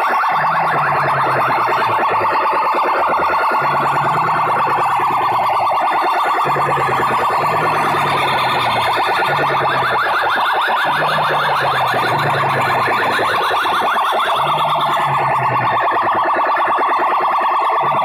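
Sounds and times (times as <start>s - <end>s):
warbling siren-like synth tone: 0.0s - 18.0s
low bass line: 6.5s - 10.0s.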